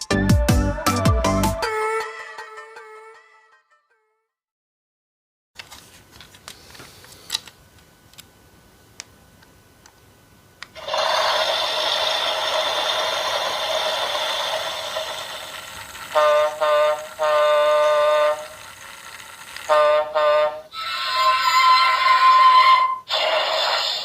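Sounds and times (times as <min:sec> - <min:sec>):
electronic horn-like blasts: 0:16.1 - 0:18.6, 0:19.7 - 0:23.1.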